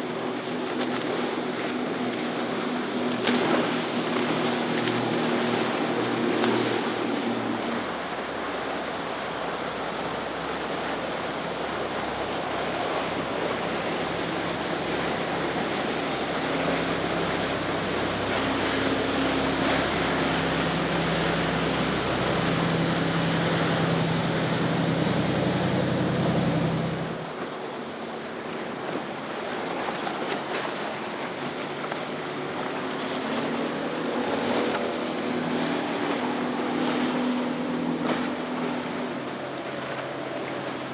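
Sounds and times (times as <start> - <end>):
boat engines humming: 0.0 - 27.5, 30.7 - 40.9
faint boat engine: 0.0 - 40.9
rushing wake water: 0.0 - 40.9
wind: 0.0 - 40.9
surf: 9.8 - 27.4.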